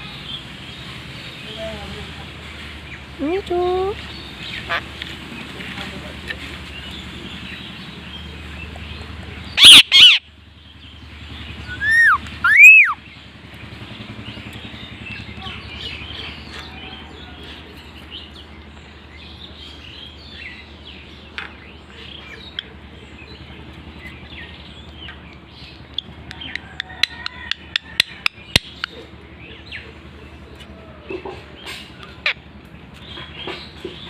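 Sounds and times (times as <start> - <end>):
parrot chattering in soft chirps: 9.6 - 10.2, 11.7 - 13.0.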